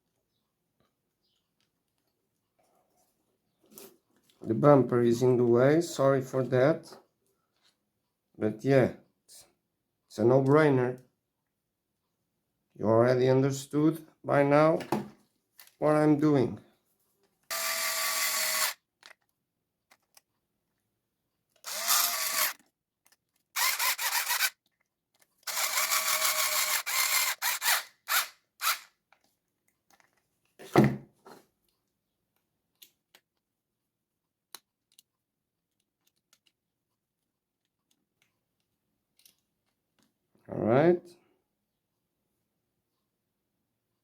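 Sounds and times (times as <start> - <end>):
power screwdriver whirring: 17.5 - 18.8, 21.6 - 22.6, 23.6 - 24.6, 25.4 - 28.9.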